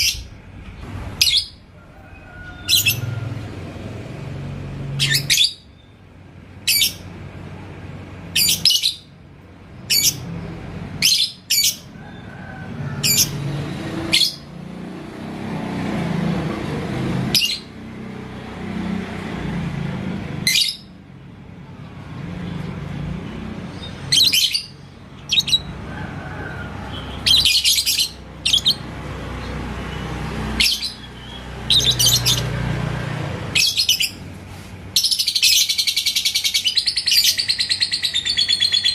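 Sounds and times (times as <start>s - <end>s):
bird shrill chirps: 26.9s - 28.8s, 35.0s - 38.9s.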